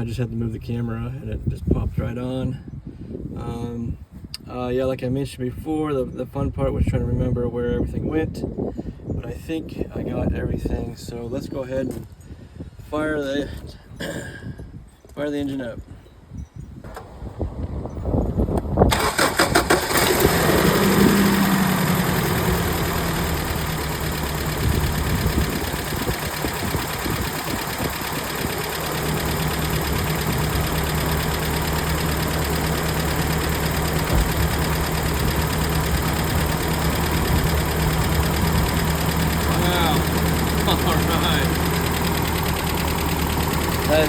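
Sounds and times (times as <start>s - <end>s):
engine cranking and idling: 16.8s - 44.0s.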